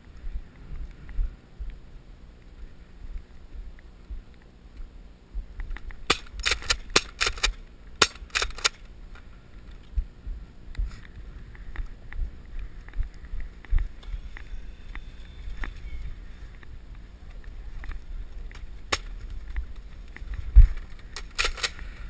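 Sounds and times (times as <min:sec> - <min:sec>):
wind rumble on microphone: 0:00.0 - 0:04.4, 0:09.3 - 0:21.2
toy blasters firing sharp clicks: 0:06.0 - 0:08.9, 0:18.5 - 0:19.2, 0:21.2 - 0:21.9.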